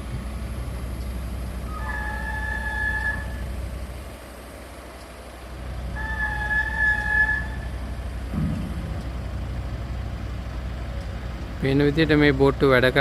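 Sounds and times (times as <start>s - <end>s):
low engine rumble: 0.0s - 13.0s
two-pitch electronic warning tone: 1.6s - 3.5s, 5.9s - 7.9s
dull thump: 8.2s - 9.8s.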